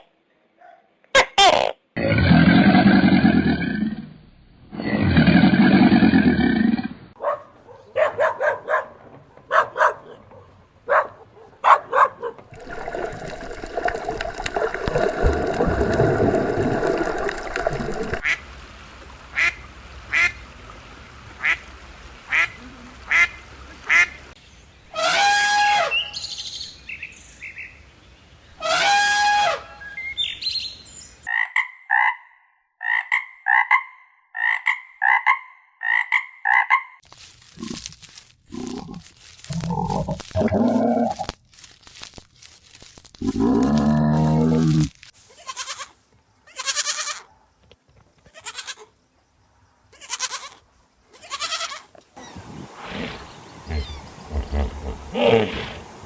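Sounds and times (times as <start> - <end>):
short repeated animal calls: 51.3 - 56.0
long low animal call: 52.2 - 56.0
longer pitched animal calls: 52.2 - 56.0.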